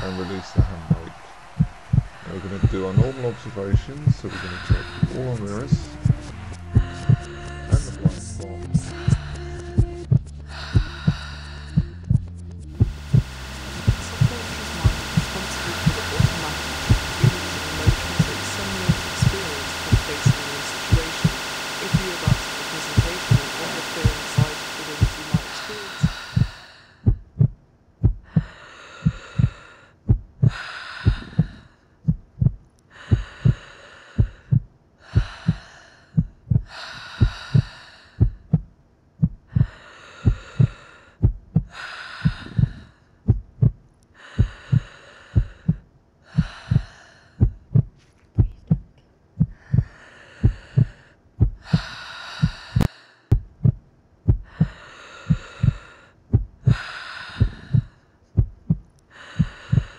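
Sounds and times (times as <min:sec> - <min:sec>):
loud breathing: 0:00.0 - 0:06.5, 0:12.8 - 0:27.1, 0:28.3 - 0:31.9, 0:32.9 - 0:38.4, 0:39.5 - 0:43.2, 0:44.1 - 0:47.5, 0:49.5 - 0:53.4, 0:54.4 - 0:58.2, 0:59.1 - 0:59.9
heartbeat thumping: 0:00.0 - 0:59.9.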